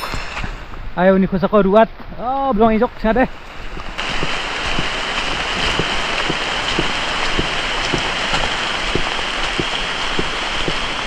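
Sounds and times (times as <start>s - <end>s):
heavy rain falling: 3.2s - 11.0s.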